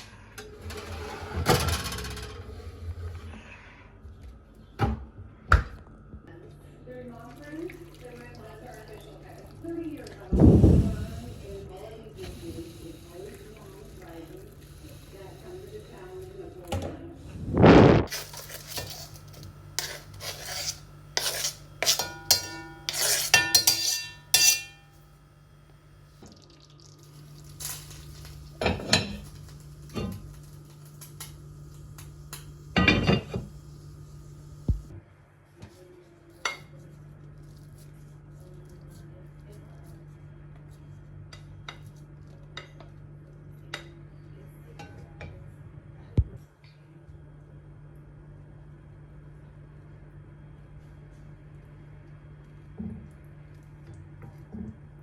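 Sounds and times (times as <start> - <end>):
low steady hum: 0.0 - 55.0
steady low hum: 10.2 - 36.0
loud thud: 10.3 - 11.3
utensils clinking against dishware: 18.1 - 24.9.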